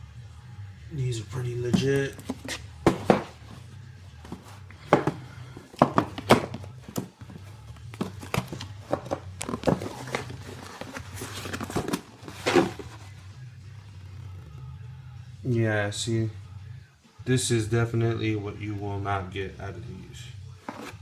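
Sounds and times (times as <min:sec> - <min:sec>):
packages being handled: 0:01.7 - 0:13.2, 0:20.6 - 0:21.0.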